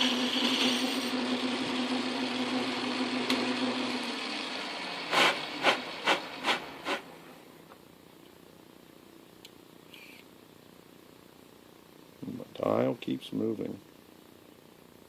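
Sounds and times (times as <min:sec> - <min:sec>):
metal lathe motor hum: 0:00.0 - 0:05.1
short sharp strokes: 0:05.1 - 0:07.1.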